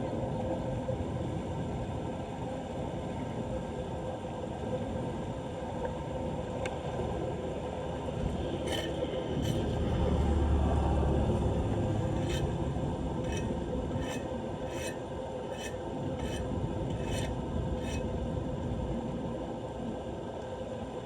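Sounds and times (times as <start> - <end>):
short scraping strokes: 8.7 - 9.8, 12.1 - 12.6, 13.2 - 18.0.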